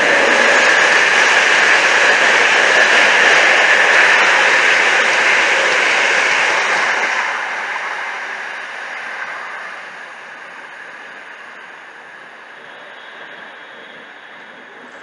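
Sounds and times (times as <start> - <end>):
train passing: 0.0 - 15.0.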